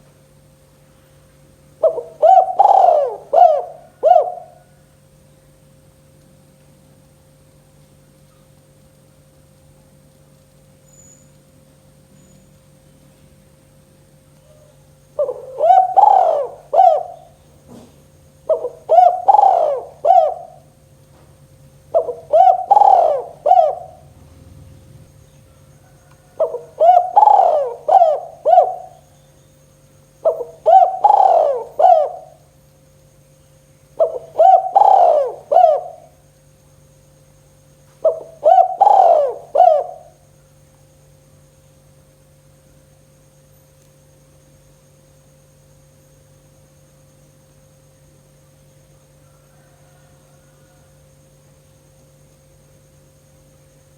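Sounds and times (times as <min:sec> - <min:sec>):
steady low hum: 0:00.0 - 0:49.5
dove cooing: 0:01.8 - 0:04.9, 0:14.4 - 0:29.2, 0:30.2 - 0:32.5, 0:33.9 - 0:36.2, 0:38.0 - 0:40.3, 0:49.2 - 0:51.0.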